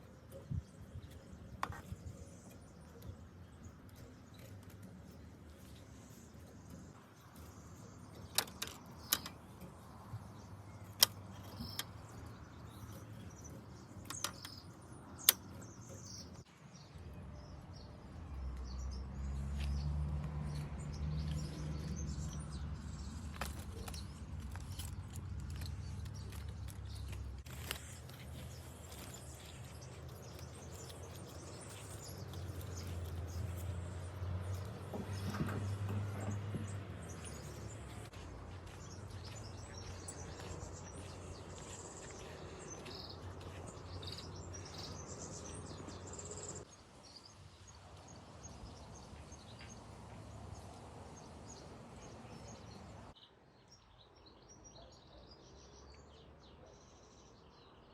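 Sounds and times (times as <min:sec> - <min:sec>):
small birds chirping: 0:00.0 - 0:57.9
low vehicle rumble: 0:17.5 - 0:46.7.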